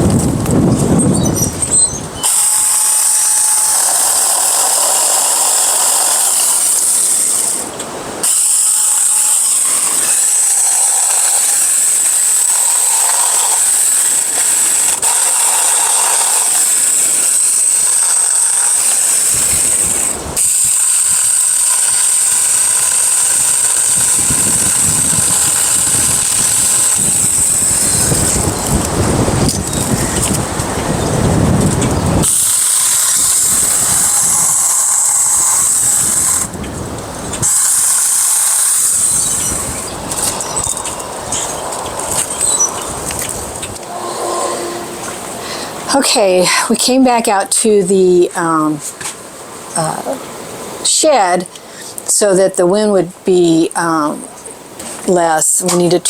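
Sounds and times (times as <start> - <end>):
cordless chainsaw whining: 1.4 - 36.6, 37.3 - 46.0.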